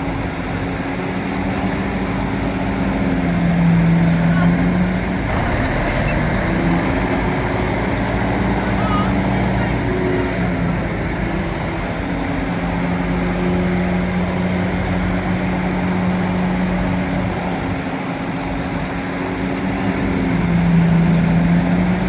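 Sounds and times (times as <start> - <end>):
bulldozer diesel engine running: 1.8 - 17.4.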